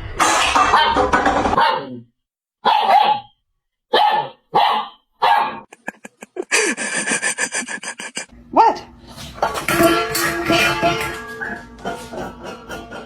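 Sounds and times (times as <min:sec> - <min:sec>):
dogs barking: 0:00.6 - 0:02.0, 0:02.6 - 0:03.3, 0:03.9 - 0:05.8.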